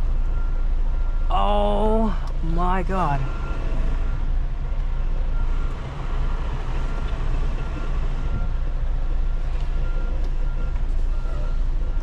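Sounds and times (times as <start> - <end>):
faint repeating beep: 2.4 - 4.2.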